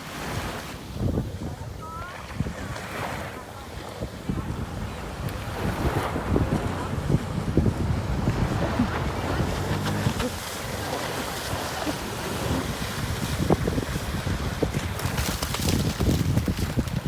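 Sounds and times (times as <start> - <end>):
wind buffeting microphone: 0.2 - 17.0
jet ski engine: 4.6 - 15.7.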